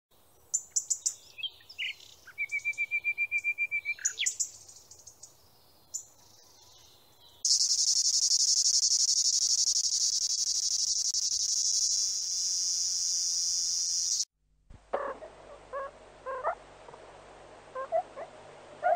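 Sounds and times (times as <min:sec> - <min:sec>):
songbird chirping: 0:00.2 - 0:14.3
high-pitched insect trill: 0:07.4 - 0:14.3.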